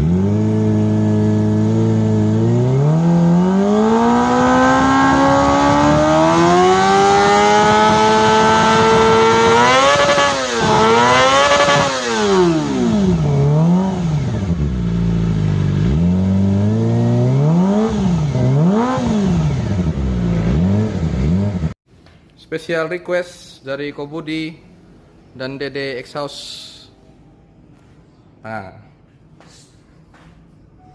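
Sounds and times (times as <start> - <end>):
motorcycle engine revving: 0.0 - 21.8.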